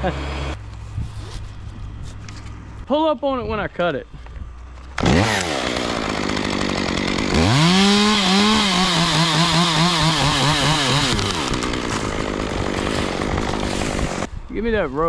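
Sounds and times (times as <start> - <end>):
chainsaw cutting through limb: 4.8 - 14.3.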